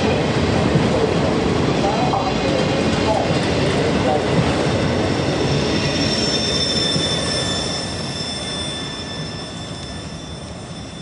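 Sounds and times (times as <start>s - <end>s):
train wheels rumbling on rails: 0.0s - 11.0s
high squeal of wheels on rail: 4.6s - 11.0s.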